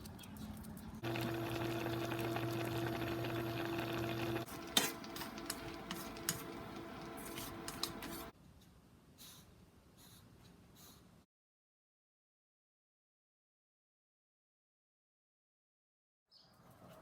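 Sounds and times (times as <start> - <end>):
steady hum: 1.0 - 8.3
utensils and dishes clinking: 4.4 - 8.3.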